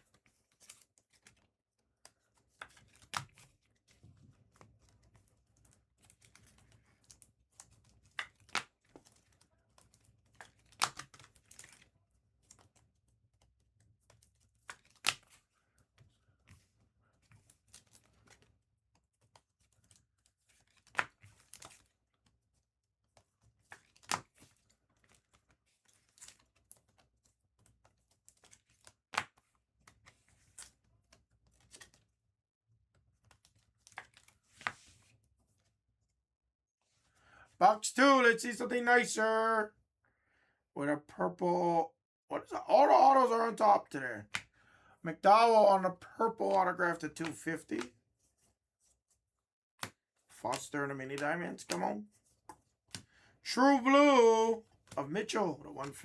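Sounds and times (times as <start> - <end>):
cards tapping and clicking: 2.1 - 18.5, 19.1 - 22.0, 23.1 - 32.0, 33.2 - 35.0, 44.2 - 44.6, 46.4 - 48.0, 49.8 - 53.1, 53.8 - 56.0.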